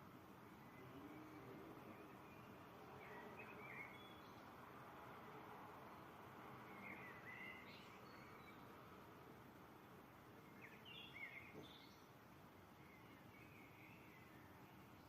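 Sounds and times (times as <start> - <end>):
low background hiss: 0.0 - 15.0
faint bird chirps: 0.4 - 4.5, 6.6 - 8.7, 10.4 - 15.0.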